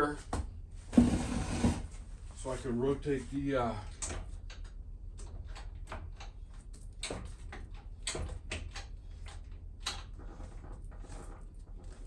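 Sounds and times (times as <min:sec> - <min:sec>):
sharp mechanical clicks and knocks: 0:04.0 - 0:11.2.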